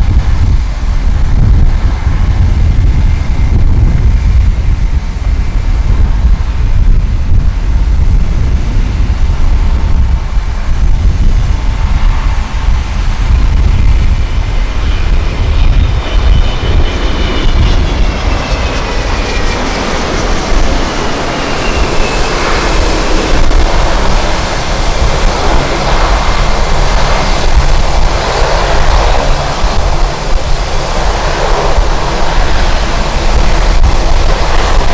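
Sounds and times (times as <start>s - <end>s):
jet engines whining: 0.0s - 34.9s
wind buffeting microphone: 0.0s - 34.9s.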